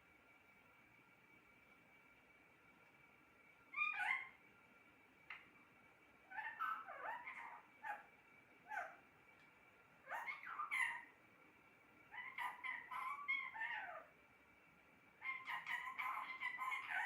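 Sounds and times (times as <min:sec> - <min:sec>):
parrot calling: 0:03.7 - 0:04.4, 0:06.3 - 0:09.0, 0:10.0 - 0:11.2, 0:12.1 - 0:14.2, 0:15.2 - 0:17.0.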